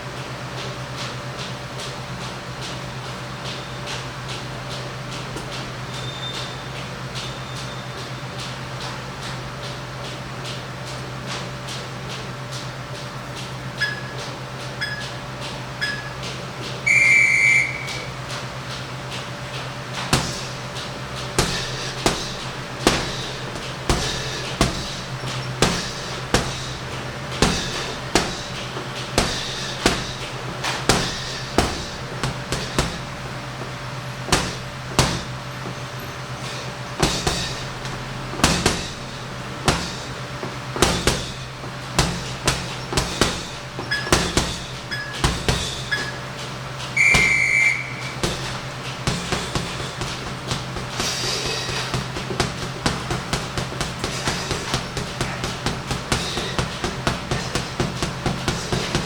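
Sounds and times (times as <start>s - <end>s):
steady low hum: 0.0s - 59.0s
short high electronic beep: 16.9s - 18.1s
punches on a heavy bag: 19.9s - 46.3s, 47.0s - 59.0s.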